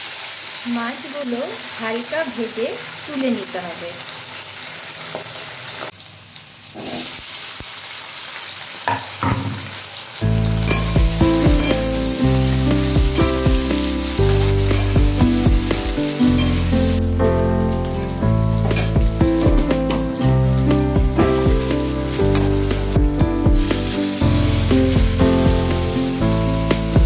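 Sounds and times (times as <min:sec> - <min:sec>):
food sizzling in a wok: 0:00.0 - 0:27.0
background music with low notes: 0:10.2 - 0:27.0.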